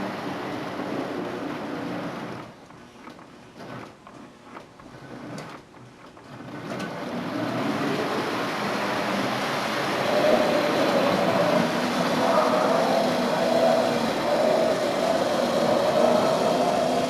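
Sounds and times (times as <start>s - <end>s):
model train motor hum: 6.5s - 17.0s.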